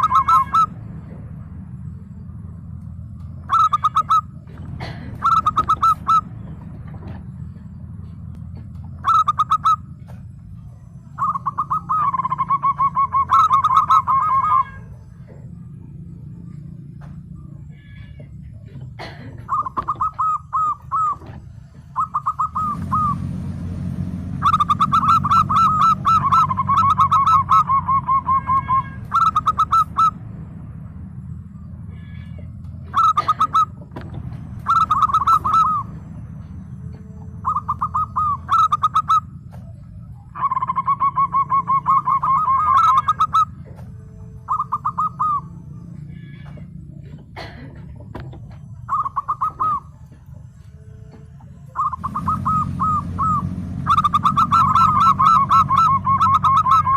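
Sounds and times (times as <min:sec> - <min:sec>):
dove cooing: 0:00.0 - 0:01.2, 0:03.3 - 0:10.3, 0:11.1 - 0:15.6, 0:16.4 - 0:30.2, 0:32.0 - 0:56.9
low steady hum: 0:00.0 - 0:56.9.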